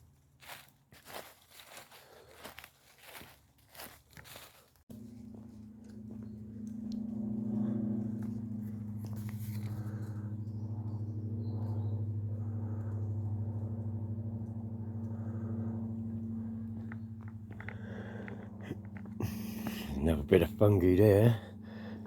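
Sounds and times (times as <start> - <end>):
low droning tone: 4.9 - 22.0.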